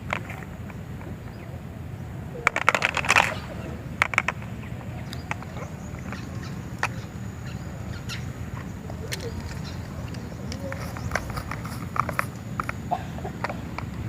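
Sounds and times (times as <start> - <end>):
steady low hum: 0.0 - 14.0
utensils clicking on small cookware: 9.5 - 12.8.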